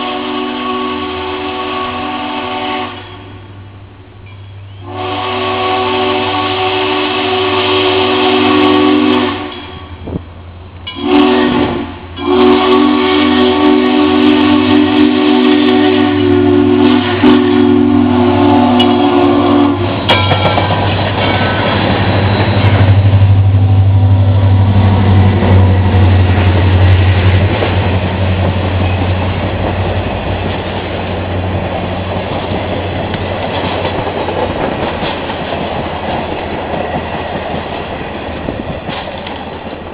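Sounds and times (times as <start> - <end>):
steam whistle chord: 0.0 - 3.4, 4.3 - 9.9, 10.9 - 19.9
diesel locomotive drone: 0.0 - 39.9
wheels clattering over rail joints: 19.9 - 23.2, 24.8 - 39.9.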